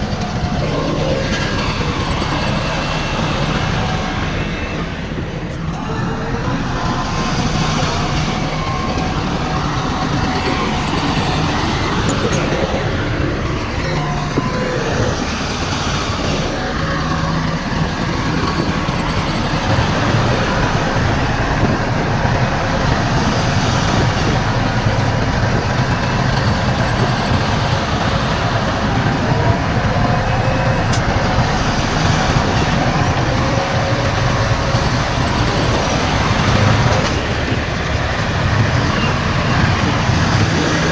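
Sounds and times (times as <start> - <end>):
heavy diesel engine drone: 0.0 - 40.9.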